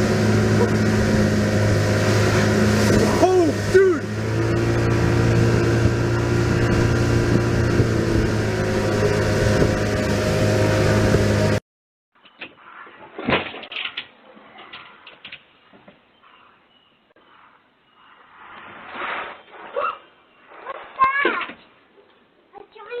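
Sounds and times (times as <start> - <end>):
motor drone: 0.0 - 11.6.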